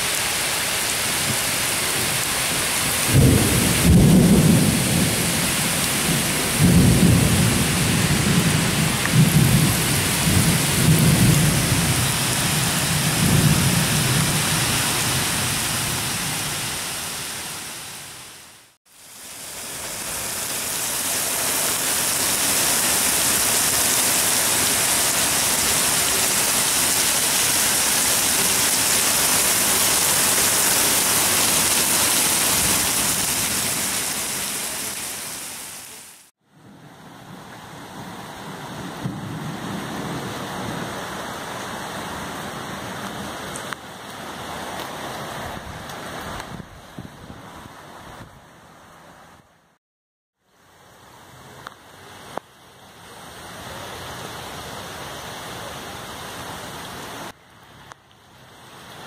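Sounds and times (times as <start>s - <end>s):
heavy rain pouring: 0.0s - 48.2s
thunder rumbling: 3.0s - 15.5s.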